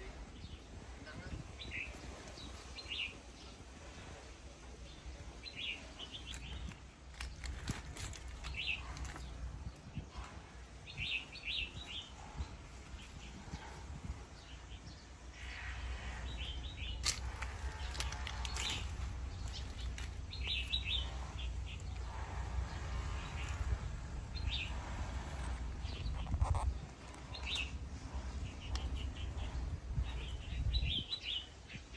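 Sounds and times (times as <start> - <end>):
small birds chirping: 0.0 - 31.9
low rumble: 6.5 - 31.1.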